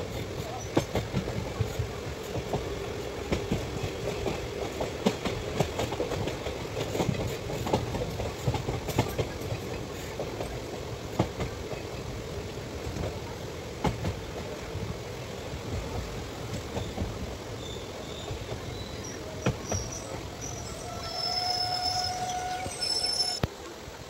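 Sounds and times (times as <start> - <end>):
wheels clacking over rail joints: 0.0 - 12.1
train wheels rumbling on track: 0.0 - 23.5.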